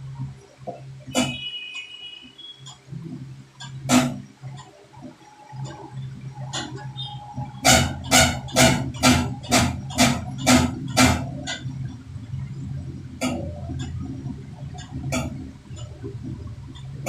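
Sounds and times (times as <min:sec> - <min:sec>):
steady low hum: 0:02.8 - 0:17.0.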